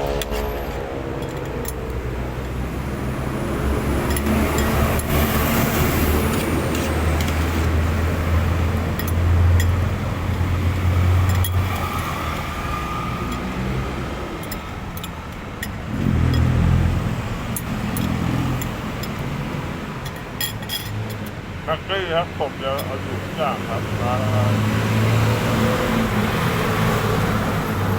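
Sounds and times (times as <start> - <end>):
vehicles passing: 0.0 - 27.9
small clinks: 8.9 - 10.4, 20.0 - 21.4.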